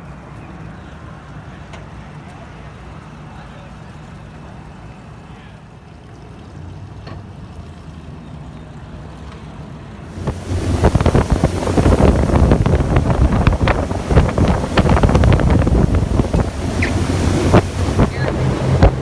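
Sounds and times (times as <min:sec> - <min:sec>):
boat engine hum: 0:10.1 - 0:19.0
rushing water: 0:10.1 - 0:19.0
wind buffeting microphone: 0:10.1 - 0:19.0.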